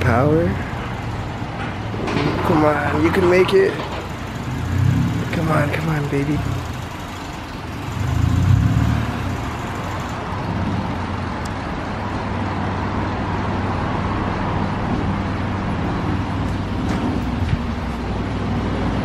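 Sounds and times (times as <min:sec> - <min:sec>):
car engine running at low revs: 0:04.1 - 0:11.6.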